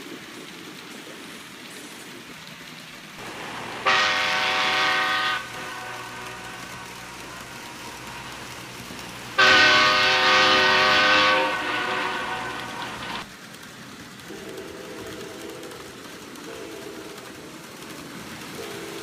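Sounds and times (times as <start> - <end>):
steady hum: 3.2 - 13.2
model train horn blast: 3.2 - 13.3.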